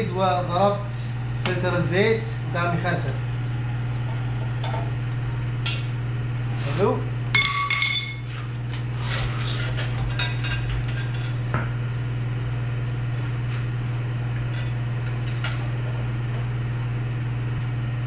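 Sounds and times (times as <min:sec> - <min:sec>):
steady low hum: 0:00.0 - 0:18.0
metal clang: 0:07.4 - 0:08.3.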